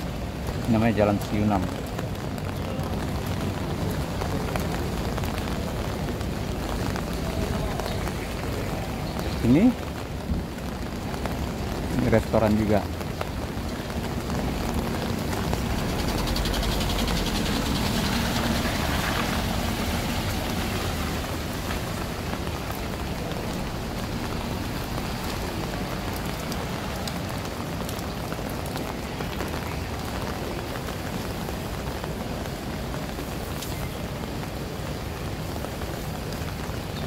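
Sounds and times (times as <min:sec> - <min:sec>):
steady rain on wet street: 0:00.0 - 0:37.0
car tyres hissing through water: 0:13.7 - 0:26.9.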